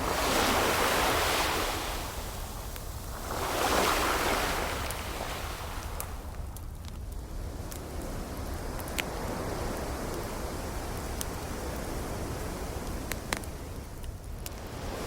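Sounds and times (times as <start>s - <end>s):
ocean waves washing ashore: 0.0s - 6.4s, 7.3s - 13.9s, 14.5s - 15.0s
wood fire crackling: 5.8s - 14.7s.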